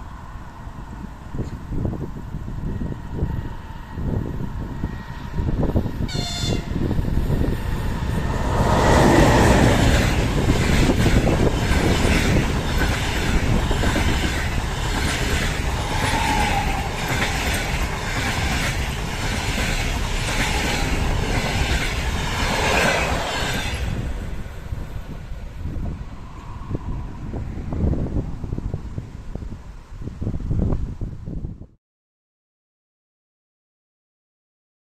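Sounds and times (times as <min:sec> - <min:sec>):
rush of passing train cars: 0:00.0 - 0:31.4
train wheels clickety-clack: 0:08.2 - 0:24.6.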